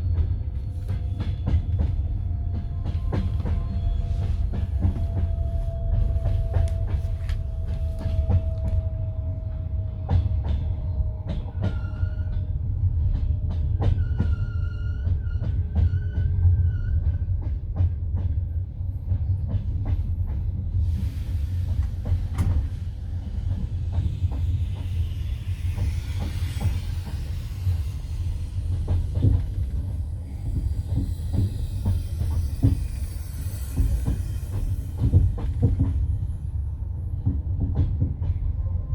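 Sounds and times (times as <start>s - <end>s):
train carriage rumbling: 0.0s - 38.9s
hiss: 20.8s - 35.8s
high metallic squeal: 22.4s - 36.2s.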